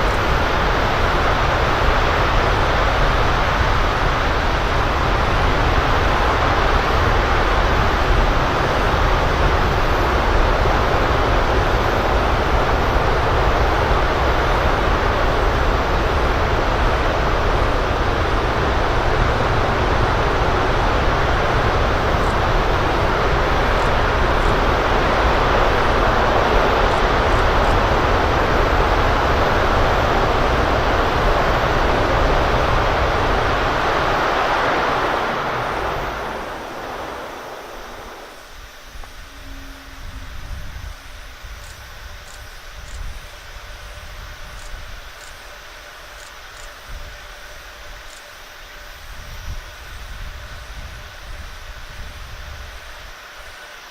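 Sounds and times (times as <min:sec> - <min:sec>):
rocket engine rumble: 0:00.0 - 0:45.2.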